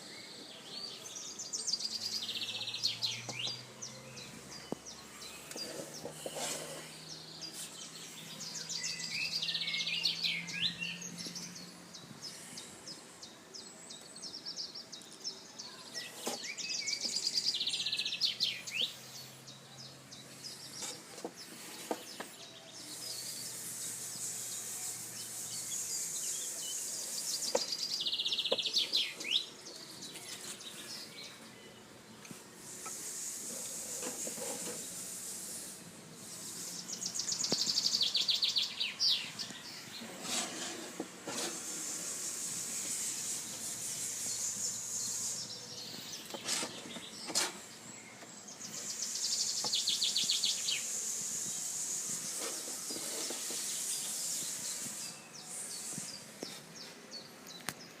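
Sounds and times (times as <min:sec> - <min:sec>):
bird trilled song: 0:00.0 - 0:31.9, 0:32.7 - 0:58.0
thin bird chirps: 0:00.0 - 0:58.0.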